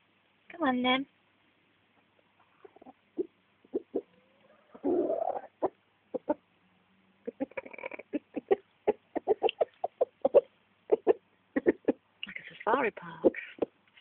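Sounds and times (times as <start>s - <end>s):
hens clucking: 1.9s - 6.5s, 7.2s - 12.1s, 13.1s - 13.8s
hen calling: 2.4s - 6.4s.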